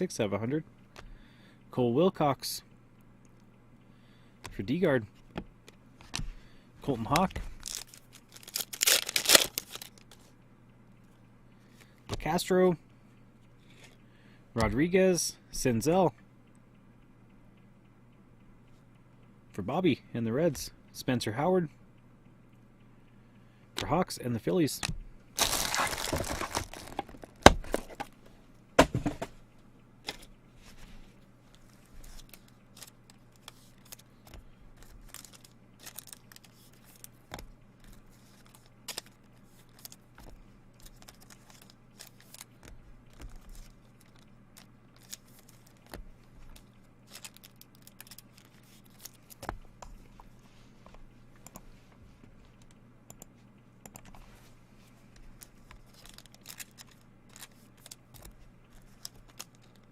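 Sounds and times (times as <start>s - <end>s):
low steady hum: 0.0s - 59.9s
card wrappers crinkling and rustling: 6.0s - 10.3s, 25.4s - 28.2s, 31.5s - 49.6s, 54.9s - 59.9s.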